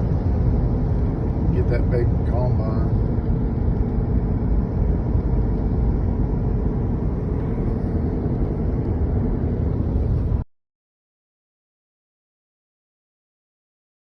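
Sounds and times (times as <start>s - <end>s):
vehicle engine and road noise: 0.0s - 10.5s.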